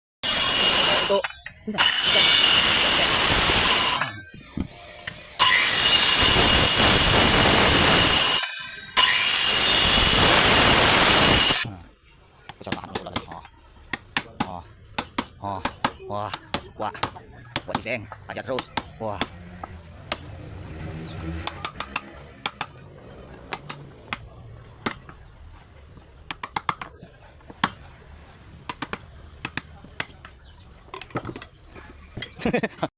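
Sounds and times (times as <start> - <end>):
power tool cutting wood: 0.2 - 11.7, 17.6 - 25.1
hard objects tapping: 12.5 - 20.3, 21.3 - 22.8, 23.5 - 27.9, 28.6 - 32.5.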